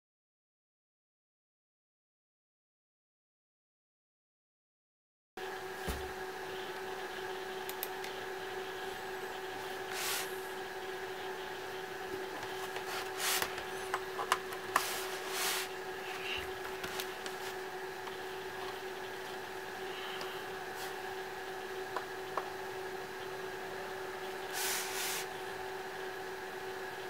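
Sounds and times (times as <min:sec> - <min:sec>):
electrical hum: 0:05.4 - 0:27.0.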